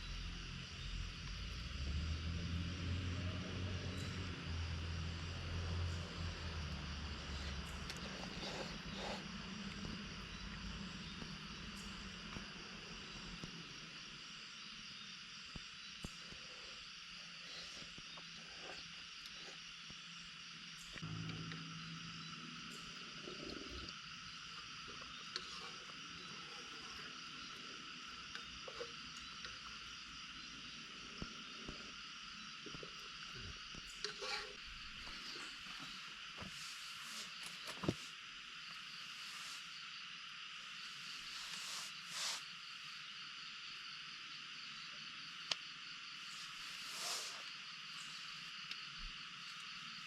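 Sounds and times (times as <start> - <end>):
forest insects chorus: 0.0 - 50.0.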